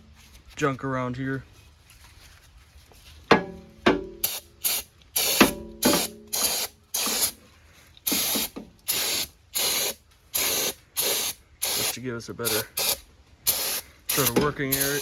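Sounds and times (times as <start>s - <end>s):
aerosol spray hissing bursts: 4.2s - 7.4s, 8.0s - 15.0s.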